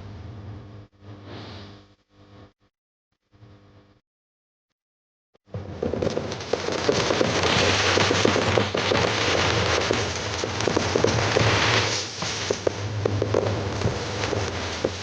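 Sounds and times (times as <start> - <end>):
fireworks crackling and popping: 5.6 - 15.0.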